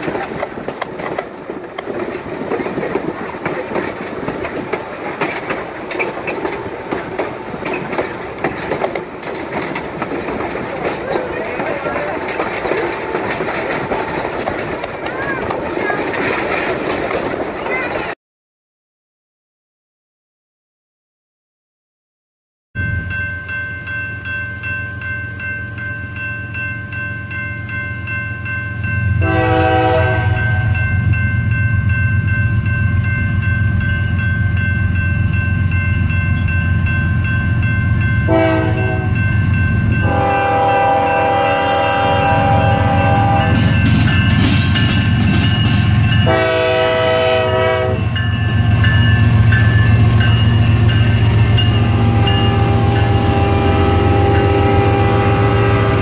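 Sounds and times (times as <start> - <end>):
train rumbling: 0.0 - 18.2, 22.8 - 56.0
multi-note train horn: 29.2 - 30.8, 38.3 - 39.2, 40.0 - 43.7, 46.2 - 48.2, 51.8 - 56.0.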